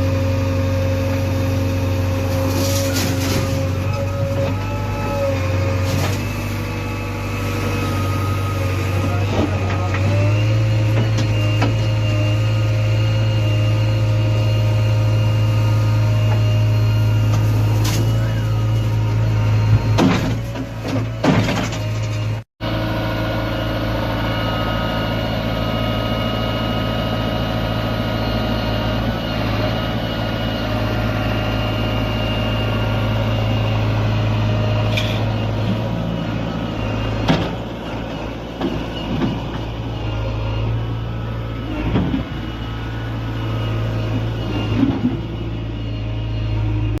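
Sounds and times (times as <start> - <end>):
diesel engine droning: 0.0 - 47.0
knocks and clanks: 19.7 - 22.3, 37.2 - 39.7.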